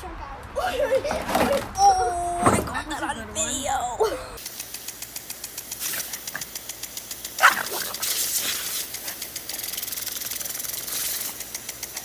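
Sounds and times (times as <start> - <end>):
fast even ticking: 4.4 - 12.0
dog barking: 7.4 - 8.0.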